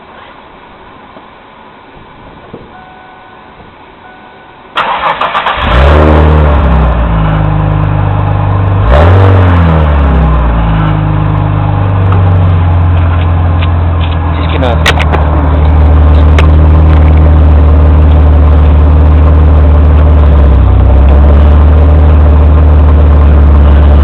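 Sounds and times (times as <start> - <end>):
car engine idling: 0.9 - 24.0
car starter cranking: 4.8 - 6.0
engine revving: 4.8 - 24.0.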